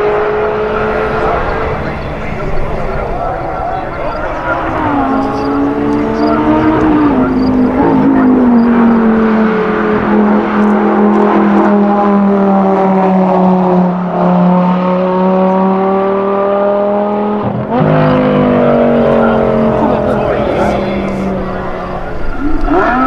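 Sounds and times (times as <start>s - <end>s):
car engine running: 0.0s - 11.6s, 17.8s - 23.0s.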